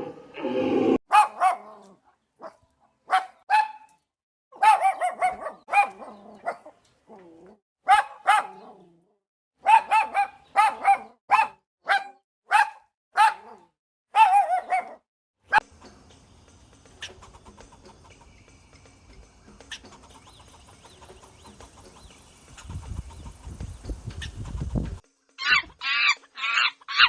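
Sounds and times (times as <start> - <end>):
dog barking: 1.1 - 3.9, 4.6 - 6.8, 7.8 - 9.0, 9.6 - 15.6.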